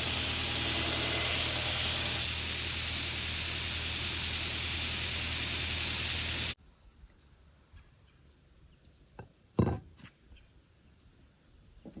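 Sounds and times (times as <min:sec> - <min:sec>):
short knocks and thuds: 0:09.6 - 0:10.1.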